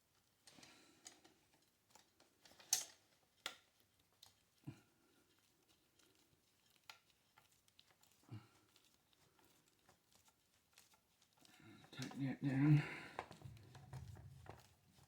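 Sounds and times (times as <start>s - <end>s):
clicks of small metal parts: 2.4s - 3.6s.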